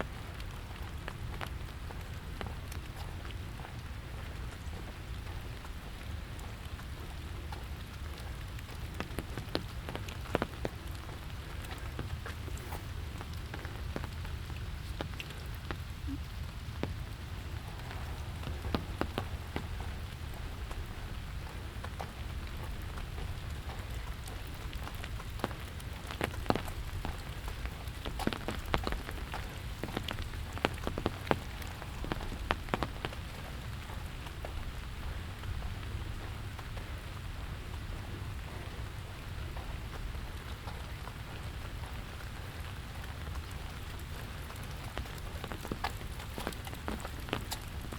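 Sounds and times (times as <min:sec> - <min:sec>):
rain falling: 0:00.0 - 0:47.9
low rumble: 0:15.9 - 0:23.9.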